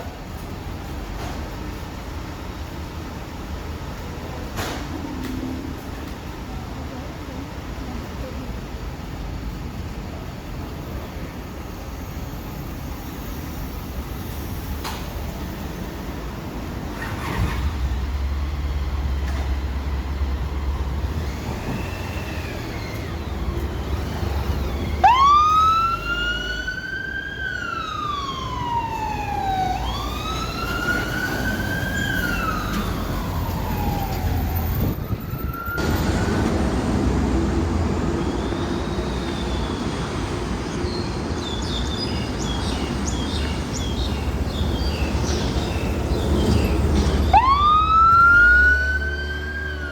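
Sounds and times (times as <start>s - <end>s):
engine and traffic rumble: 0.0s - 49.9s
emergency siren wailing: 19.1s - 37.3s, 47.2s - 49.9s.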